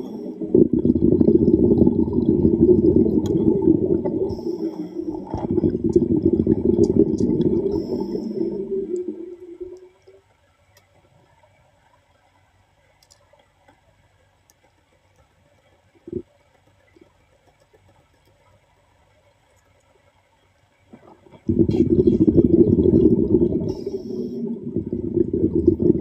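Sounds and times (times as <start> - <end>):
water bubbling and gurgling: 0.0 - 10.3, 15.9 - 17.2, 20.8 - 26.0
faint clicks: 6.8 - 9.1, 9.7 - 21.5.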